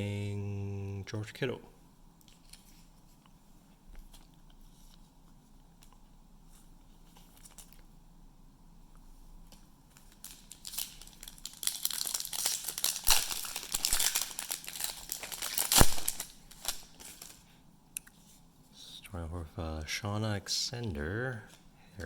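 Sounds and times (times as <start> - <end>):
foil wrapper tearing and crinkling: 10.0 - 17.4.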